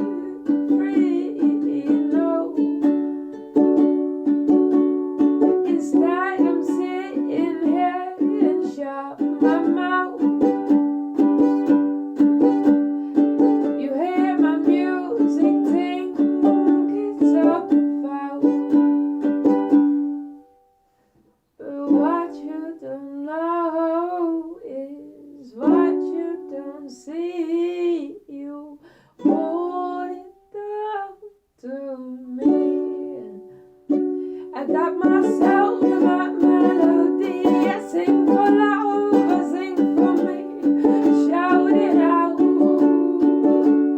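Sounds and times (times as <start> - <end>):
person singing: 0.0 - 20.2, 21.6 - 43.9
ukulele strumming: 0.0 - 20.9, 21.7 - 22.9, 25.6 - 27.9, 29.2 - 30.9, 32.3 - 43.9.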